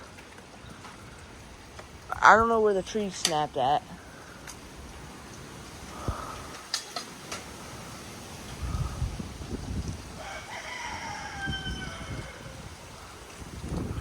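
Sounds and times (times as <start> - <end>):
wind rumbling on microphone: 0.0 - 14.0
rooster crowing: 10.2 - 12.7.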